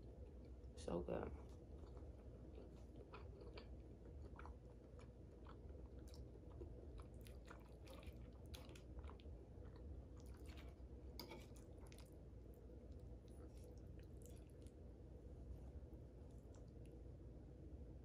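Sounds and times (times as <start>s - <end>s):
quiet chewing: 1.4s - 17.1s.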